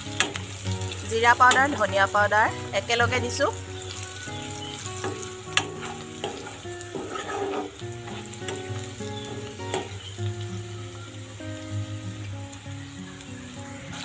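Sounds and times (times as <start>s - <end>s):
food sizzling in hot oil: 0.0s - 14.0s
spatula scraping and knocking pan: 5.0s - 10.0s.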